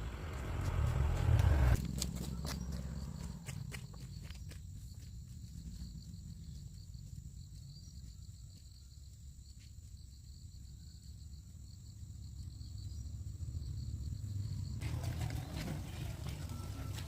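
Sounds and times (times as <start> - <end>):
low rumble: 0.0 - 4.0
crickets chirring: 0.0 - 17.0.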